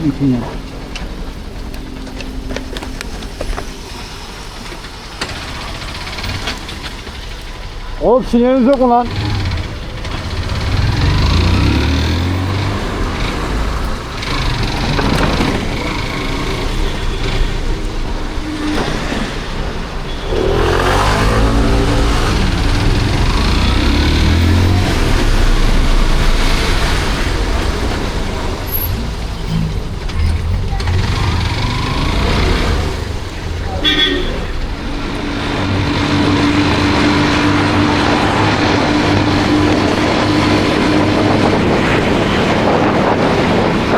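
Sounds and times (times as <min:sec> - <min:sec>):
motorcycle engine accelerating: 0:00.0 - 0:43.9
rushing riding noise: 0:00.0 - 0:43.9.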